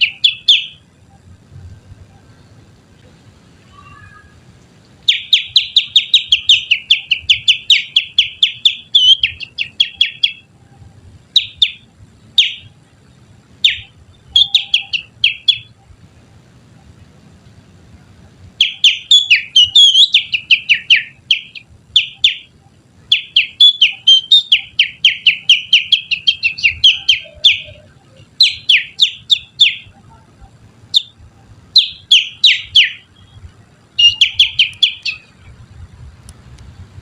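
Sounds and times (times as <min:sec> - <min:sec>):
finger whistling bird call: 0:05.1 - 0:10.4, 0:13.7 - 0:15.7, 0:18.6 - 0:22.5, 0:23.1 - 0:30.0, 0:34.0 - 0:35.3.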